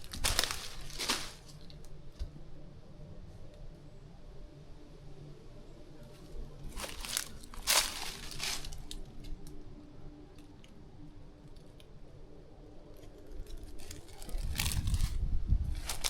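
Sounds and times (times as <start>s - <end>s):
footsteps through undergrowth: 0.0s - 1.9s, 6.2s - 9.5s, 13.5s - 16.0s
twigs clicking and snapping: 0.0s - 2.4s, 6.7s - 9.6s, 12.9s - 16.0s.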